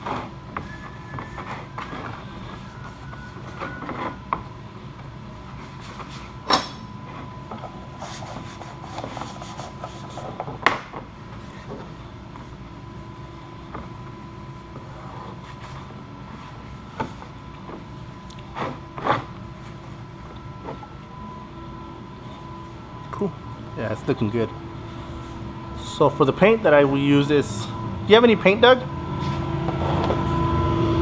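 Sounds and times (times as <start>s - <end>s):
steady hum: 0.0s - 31.0s
paper towel rubbing plastic: 8.0s - 10.5s.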